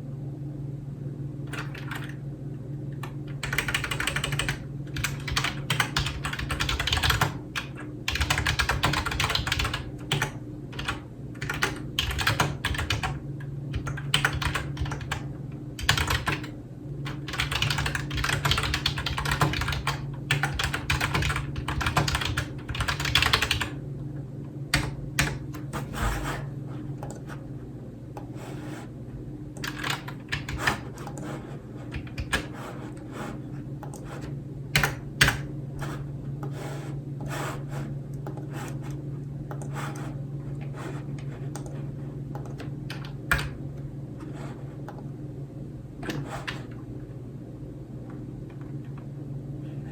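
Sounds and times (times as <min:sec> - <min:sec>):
low steady hum: 0:00.0 - 0:49.9
typing on keyboard: 0:01.5 - 0:02.2, 0:03.0 - 0:23.7, 0:24.7 - 0:25.9, 0:29.6 - 0:31.3, 0:31.9 - 0:32.5, 0:34.8 - 0:35.5, 0:42.4 - 0:43.6.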